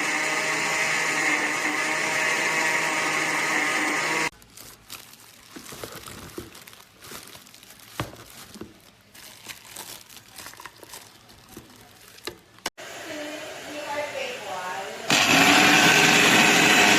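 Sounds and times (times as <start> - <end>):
blender motor cutting off: 0.0 - 4.3, 12.8 - 16.9
crinkling rustles: 4.3 - 12.7.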